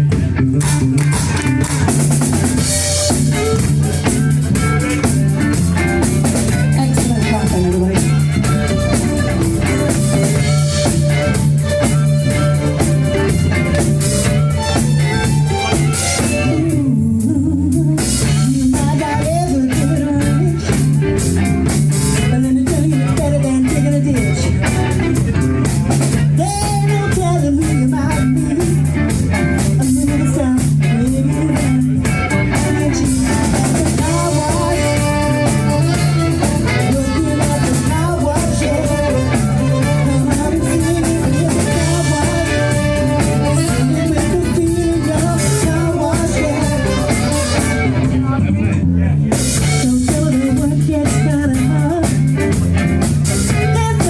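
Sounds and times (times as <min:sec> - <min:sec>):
live funk band playing: 0:00.0 - 0:54.0
person singing: 0:00.0 - 0:54.0.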